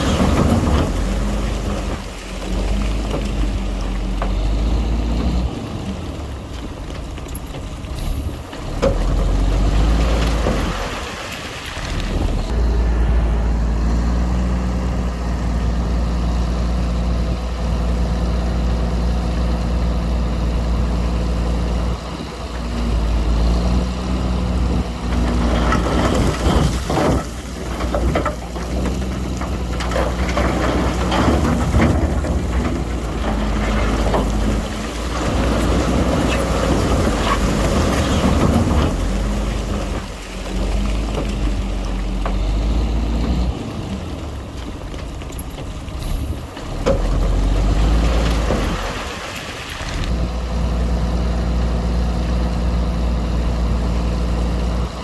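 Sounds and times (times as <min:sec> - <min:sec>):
clattering and scraping: 0:00.0 - 0:05.5, 0:25.0 - 0:50.1
heavy diesel engine rumbling: 0:00.0 - 0:55.0.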